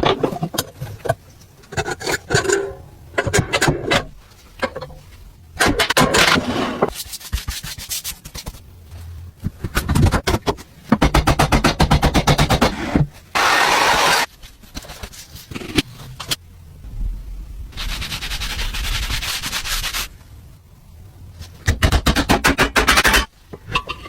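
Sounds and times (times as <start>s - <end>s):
hand rubbing an object: 17.7s - 20.2s.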